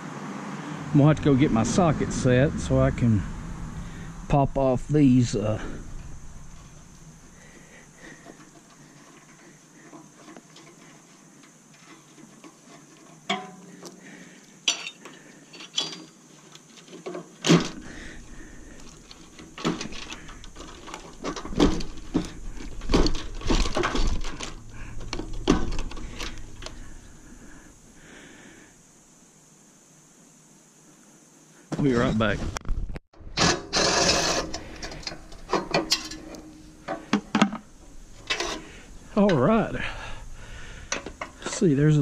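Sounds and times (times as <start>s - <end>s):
metal objects clinking and clanking: 13.2s - 13.7s, 14.6s - 16.1s, 33.4s - 38.7s.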